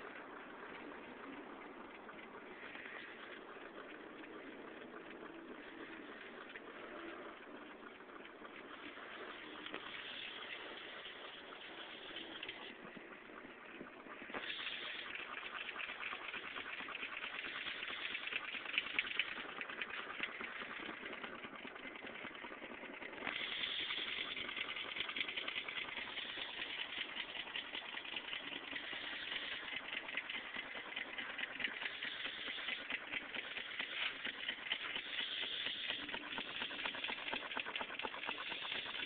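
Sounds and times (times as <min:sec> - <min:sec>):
small engine clattering ticks: 0:00.0 - 0:39.0
steady hiss: 0:14.2 - 0:18.5, 0:23.2 - 0:27.6, 0:28.5 - 0:39.0.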